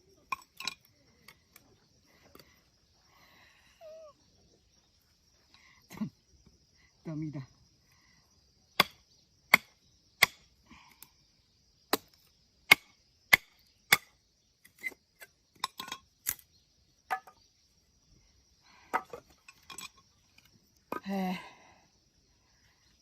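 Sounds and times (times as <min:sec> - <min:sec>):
blade chopping firewood: 0:08.8 - 0:10.6, 0:11.9 - 0:16.5, 0:17.1 - 0:17.4, 0:18.9 - 0:21.1.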